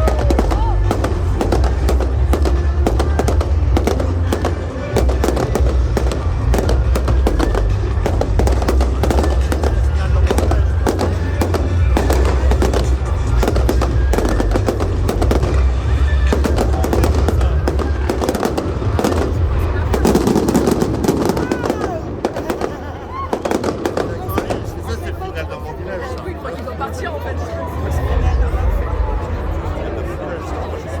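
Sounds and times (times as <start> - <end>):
music with heavy bass: 0.0 - 21.6
fireworks bursting and crackling: 0.0 - 25.5.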